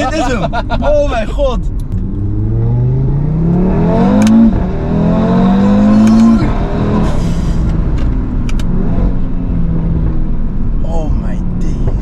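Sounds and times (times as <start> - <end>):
car engine accelerating hard: 1.6 - 12.0
gear shift crack: 3.5 - 8.9.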